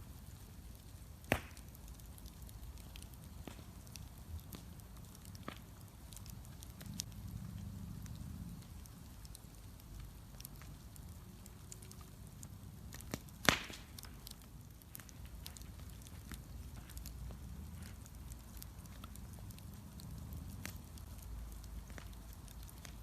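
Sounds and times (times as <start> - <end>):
low steady rumble: 0.0 - 23.0
wood fire crackling: 0.0 - 23.0
loud sharp pop: 1.3 - 1.6, 13.4 - 13.9.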